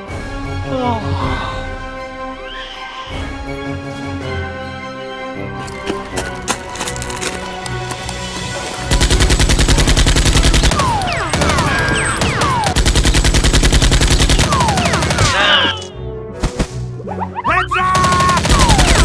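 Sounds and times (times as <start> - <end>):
background music: 0.0 - 19.0
machine-gun bursts: 5.6 - 14.5.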